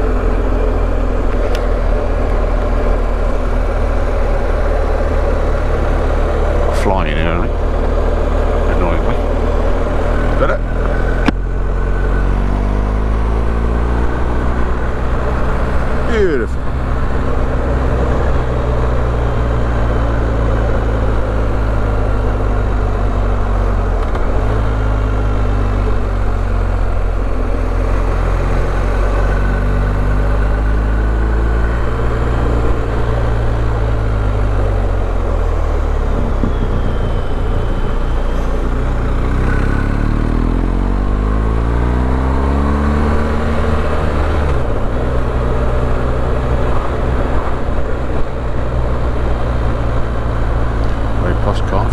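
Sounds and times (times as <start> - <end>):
motorcycle engine running: 0.0 - 51.9
wind rush: 35.9 - 39.0.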